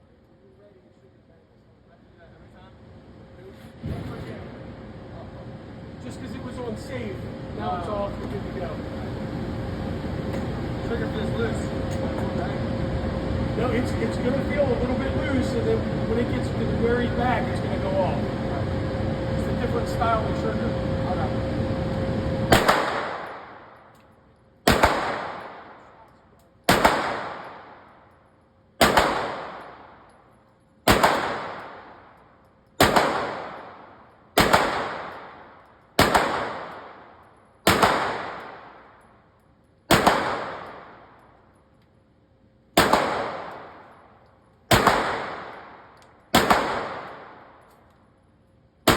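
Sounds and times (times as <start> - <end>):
gunshots with echo: 22.5 - 23.7, 24.7 - 26.0, 26.7 - 27.9, 28.8 - 30.0, 30.9 - 32.0, 32.8 - 38.9, 39.9 - 41.1, 42.8 - 43.9, 44.7 - 47.6.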